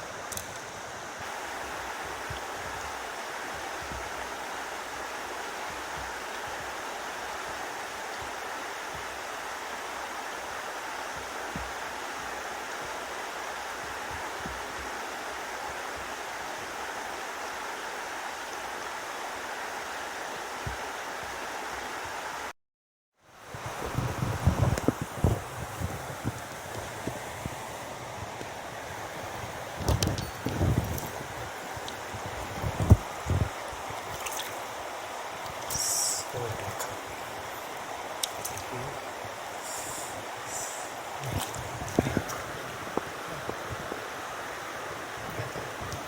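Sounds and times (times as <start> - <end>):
stream water rushing: 0.0 - 22.5, 23.3 - 46.0.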